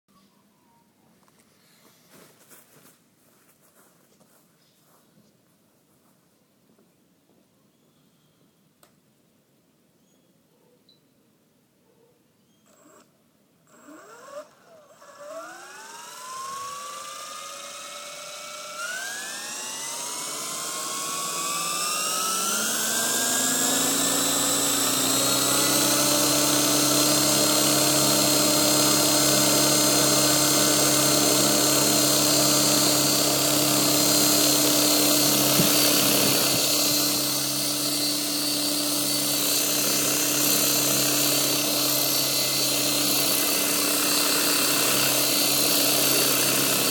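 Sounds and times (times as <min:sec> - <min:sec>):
electric motor whine: 0:13.7 - 0:46.9
rotor buzz: 0:13.7 - 0:46.9.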